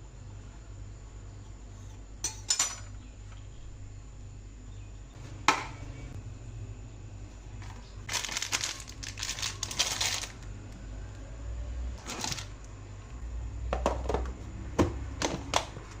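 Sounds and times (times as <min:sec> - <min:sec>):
crinkly wrapping crackling: 0:08.0 - 0:10.5.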